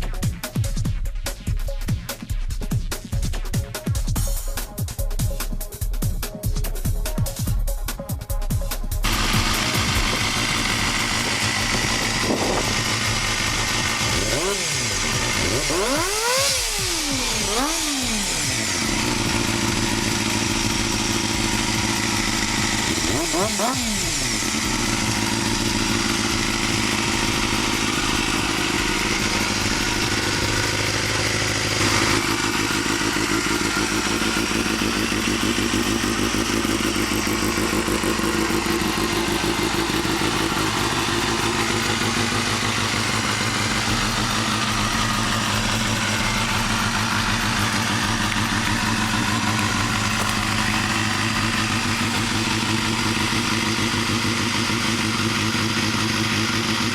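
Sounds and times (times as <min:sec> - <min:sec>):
motorcycle engine running: 0:02.7 - 0:56.9.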